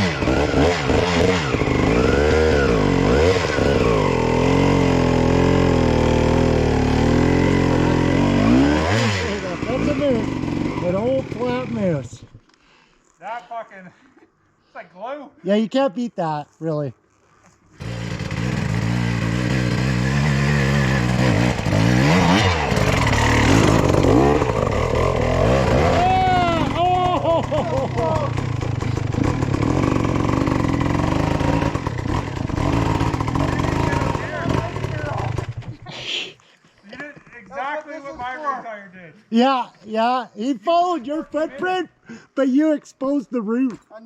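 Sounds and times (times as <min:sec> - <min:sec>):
two-stroke dirt bike engine revving: 0:00.0 - 0:12.1, 0:17.8 - 0:35.8.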